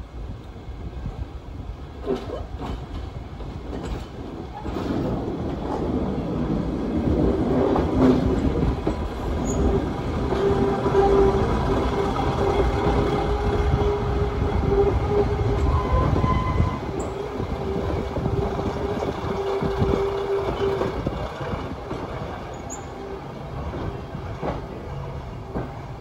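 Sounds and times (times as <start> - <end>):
diesel train engines rumbling: 0.0 - 26.0
diesel train engine whine: 5.8 - 26.0.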